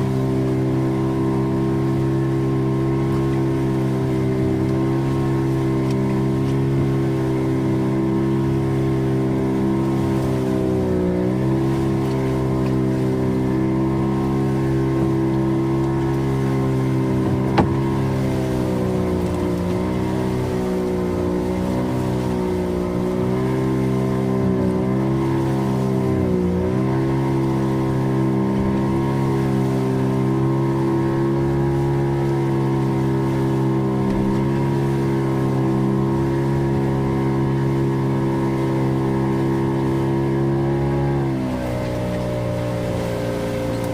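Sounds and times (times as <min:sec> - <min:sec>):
boat engine running: 0:00.0 - 0:43.9.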